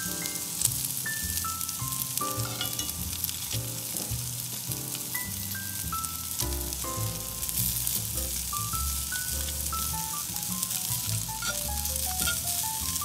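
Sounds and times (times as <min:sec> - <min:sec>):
background music with bass line: 0:00.0 - 0:13.0
steak sizzling in skillet: 0:00.0 - 0:13.0.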